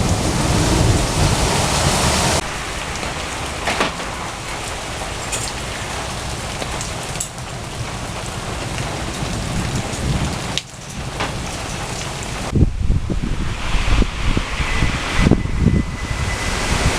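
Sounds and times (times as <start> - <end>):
steady rain falling: 0.0 - 13.1
sharp raindrop impacts: 2.4 - 14.4.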